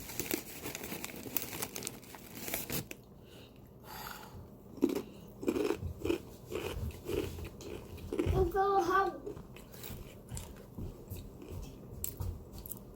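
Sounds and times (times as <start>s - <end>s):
rhythmic chewing: 4.3s - 12.9s.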